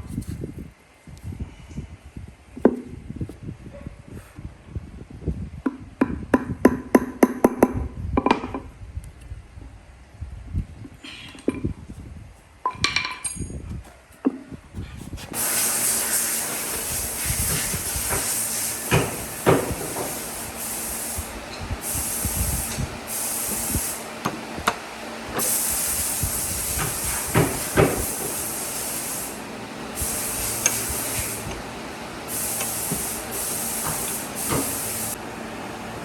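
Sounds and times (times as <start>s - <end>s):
compressed air hissing: 15.0s - 36.0s.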